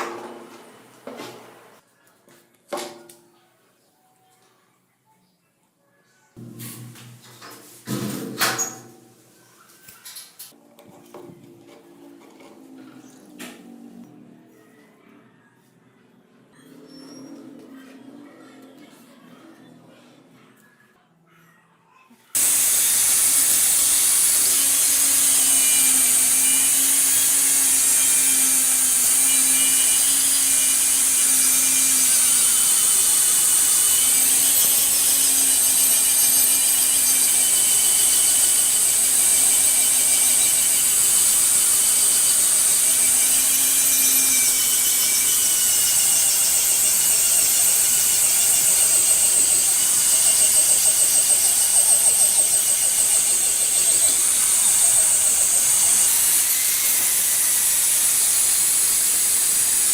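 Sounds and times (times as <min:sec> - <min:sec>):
angle grinder grinding steel: 0:22.4 - 0:59.9.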